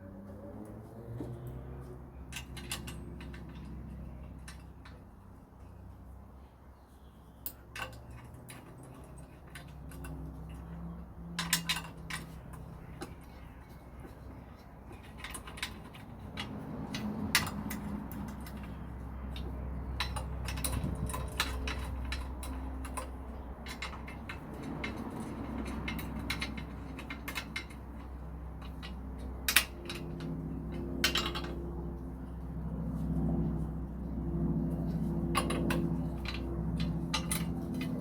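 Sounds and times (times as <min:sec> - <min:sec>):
low steady hum: 0:00.0 - 0:38.0
metal tools clinking: 0:02.3 - 0:05.0, 0:07.4 - 0:31.6, 0:35.0 - 0:38.0.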